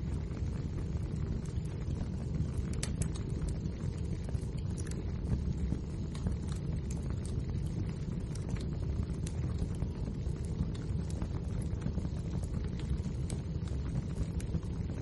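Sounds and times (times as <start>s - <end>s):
fire low rumble: 0.0s - 15.0s
wood fire crackling and popping: 0.0s - 15.0s.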